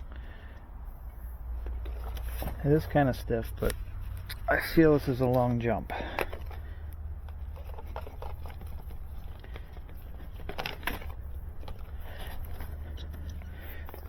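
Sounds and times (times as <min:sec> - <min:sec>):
cable scraping and clicking: 0:03.5 - 0:14.0.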